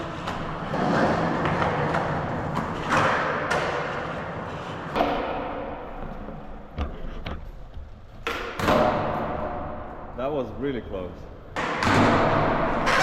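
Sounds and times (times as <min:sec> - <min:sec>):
skateboard clacks and thuds: 0:00.0 - 0:09.4, 0:11.6 - 0:13.0
skateboard wheels rolling on concrete: 0:00.0 - 0:09.4.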